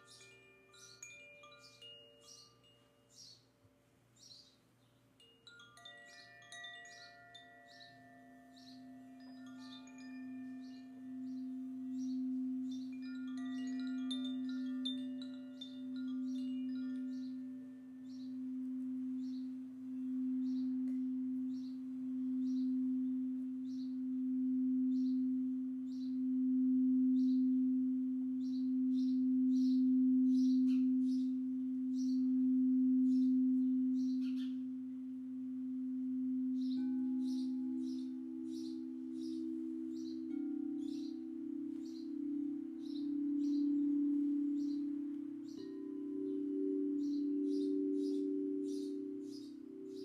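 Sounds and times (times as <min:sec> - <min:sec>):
high chime-like tones: 0:00.0 - 0:03.4, 0:05.2 - 0:27.5
singing bowl low tone: 0:00.0 - 0:03.4, 0:05.5 - 0:50.0
bird chirps: 0:00.0 - 0:03.5, 0:05.8 - 0:26.3, 0:28.4 - 0:50.0
higher singing bowl tone: 0:06.2 - 0:50.0.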